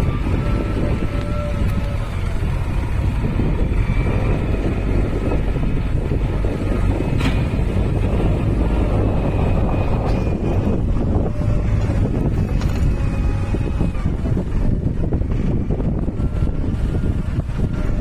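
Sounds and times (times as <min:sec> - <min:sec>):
tractor engine running: 0:00.0 - 0:18.0
wind buffeting microphone: 0:00.0 - 0:18.0.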